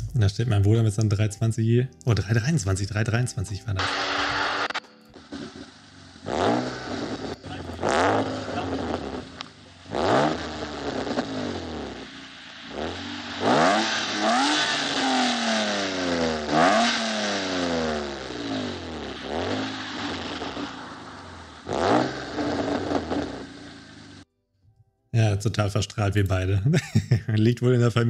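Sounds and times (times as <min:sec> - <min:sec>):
car engine revving: 0:03.7 - 0:24.3.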